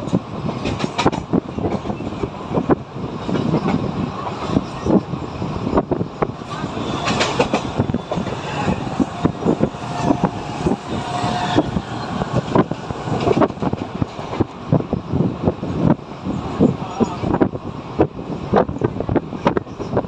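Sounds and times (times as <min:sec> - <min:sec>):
train wheels clacking on track: 0:00.0 - 0:05.1, 0:05.7 - 0:15.2.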